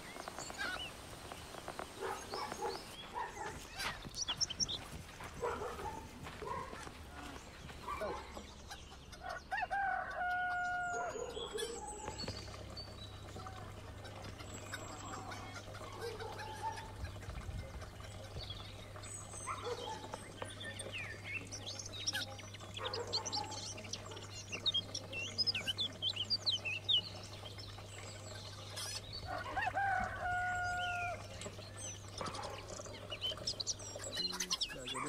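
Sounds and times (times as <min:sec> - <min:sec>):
small birds chirping: 0:00.0 - 0:35.0
rooster crowing: 0:09.3 - 0:11.2, 0:29.3 - 0:31.2.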